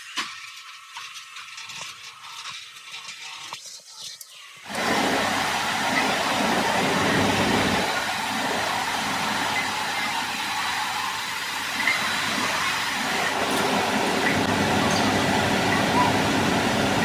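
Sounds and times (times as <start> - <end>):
workshop machinery running: 4.7 - 17.0.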